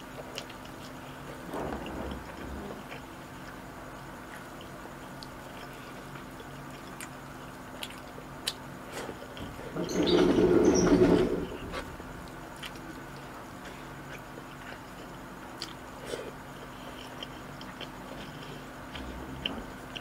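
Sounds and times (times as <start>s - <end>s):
close chewing: 4.2s - 9.4s, 14.0s - 20.0s.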